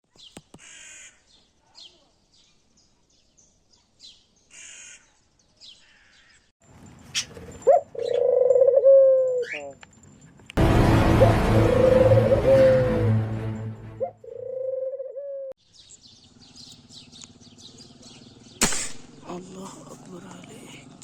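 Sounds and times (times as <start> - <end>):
crows cawing: 0.6 - 1.3, 4.5 - 5.2, 5.8 - 6.4.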